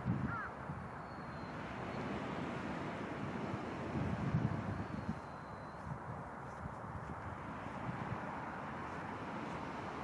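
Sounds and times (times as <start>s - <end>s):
wind buffeting microphone: 0.0s - 10.0s
ocean surf: 1.5s - 4.7s, 7.4s - 10.0s.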